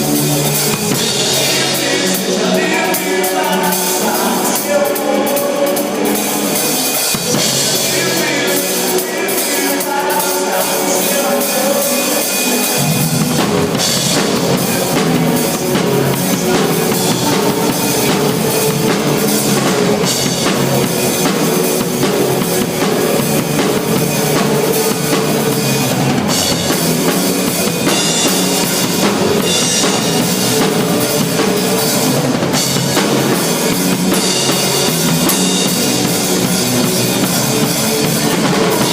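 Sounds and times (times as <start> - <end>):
band music with drum kit: 0.0 - 38.9
steady bass drum: 12.8 - 38.9.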